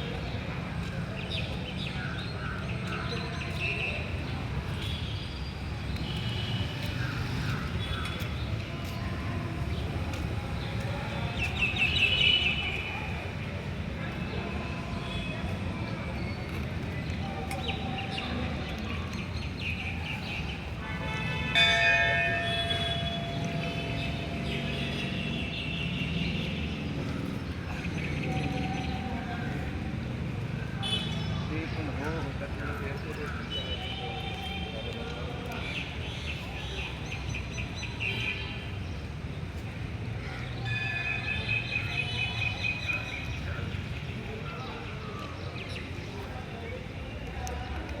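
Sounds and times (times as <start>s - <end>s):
outdoor background murmur: 0.0s - 48.0s
bell ringing: 21.5s - 24.1s.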